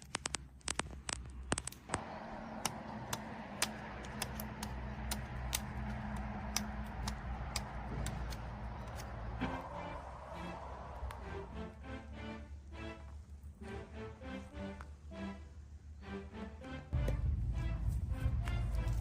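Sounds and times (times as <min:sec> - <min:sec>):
campfire crackling: 0:00.0 - 0:13.9.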